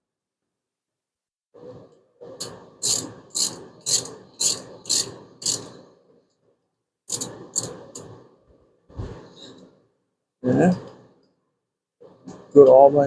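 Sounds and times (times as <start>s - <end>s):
ratchet wrench clicking: 2.4s - 5.7s, 7.1s - 8.0s.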